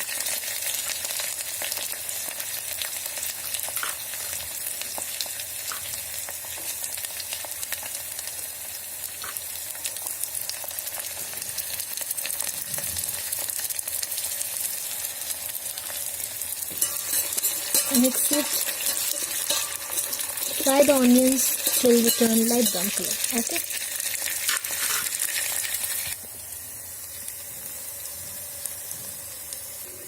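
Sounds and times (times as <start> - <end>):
vegetables sizzling in hot oil: 0.0 - 30.0.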